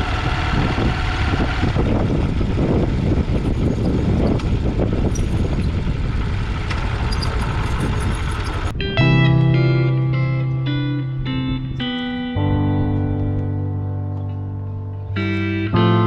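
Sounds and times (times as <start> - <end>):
motorcycle engine running: 0.0 - 8.8
wind rumble on microphone: 0.0 - 9.2.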